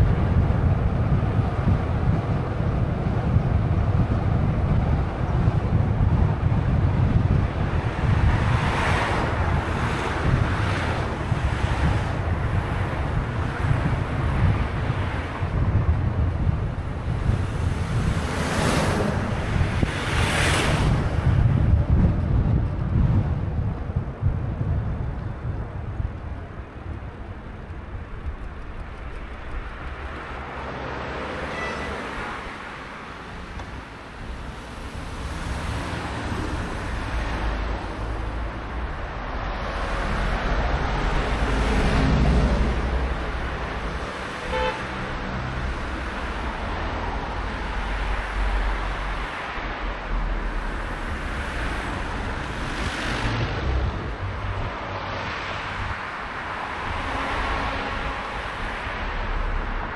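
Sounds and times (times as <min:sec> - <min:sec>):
road traffic passing: 0:00.0 - 0:59.9
wind rumble on microphone: 0:00.0 - 0:59.9
short horn toot: 0:31.5 - 0:32.1, 0:44.4 - 0:44.8.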